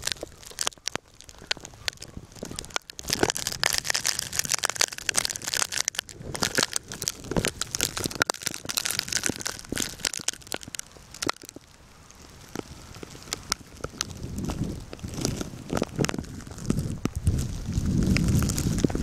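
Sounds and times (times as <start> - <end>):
crunching and crackling: 0.0 - 19.0
faint hiss: 10.9 - 14.9.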